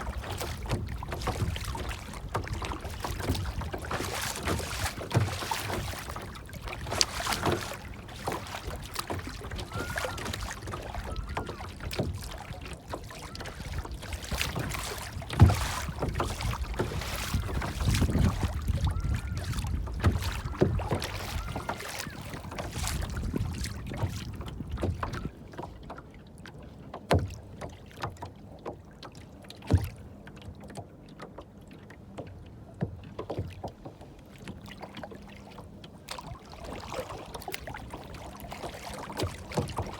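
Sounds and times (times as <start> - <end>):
sharp splashes or knocks: 0.0 - 25.3, 36.1 - 39.9
water splashing and sloshing: 0.0 - 39.9.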